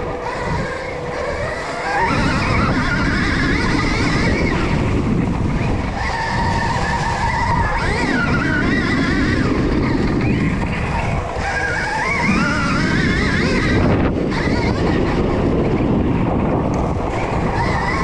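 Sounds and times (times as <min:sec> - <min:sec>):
low rumble: 0:00.0 - 0:07.8
electric motor whine: 0:00.0 - 0:18.0.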